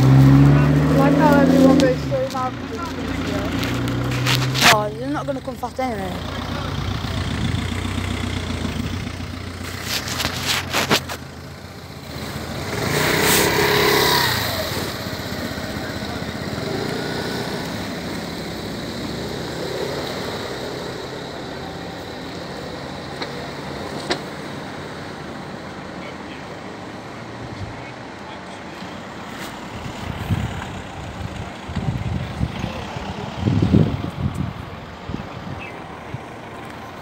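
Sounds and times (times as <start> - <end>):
vehicle passing close: 0.0 - 25.2
steady traffic hum: 0.0 - 37.0.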